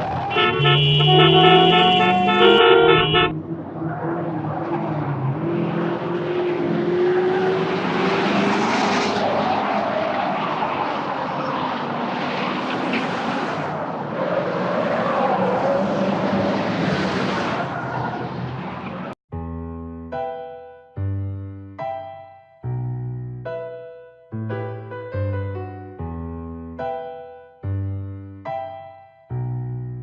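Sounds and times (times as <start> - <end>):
car engine revving: 0.0 - 9.9
tyres skidding: 0.0 - 19.2.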